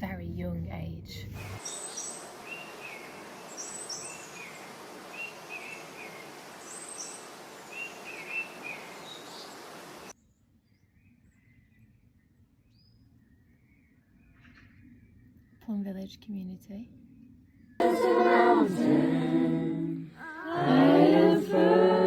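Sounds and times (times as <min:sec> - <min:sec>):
steady outdoor hiss: 0:01.4 - 0:10.2, 0:17.8 - 0:22.0
songbird chirping: 0:01.4 - 0:22.0.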